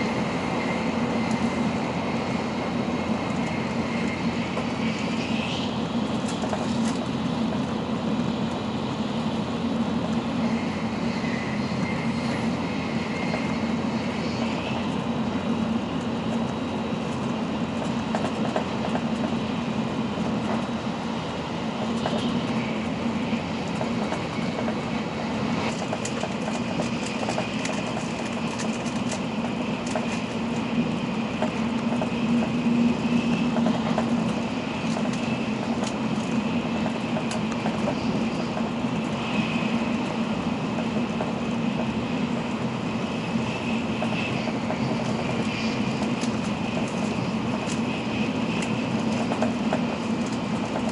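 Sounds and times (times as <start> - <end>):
low train hum: 0.0 - 50.9
rushing track and air noise: 0.0 - 50.9.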